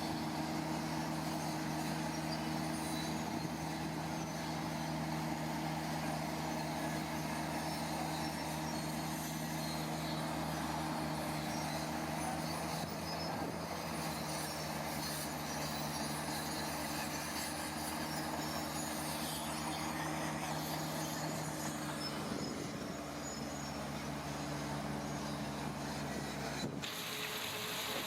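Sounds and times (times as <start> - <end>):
diesel engine running under load: 0.0 - 28.0
hiss: 26.8 - 28.0.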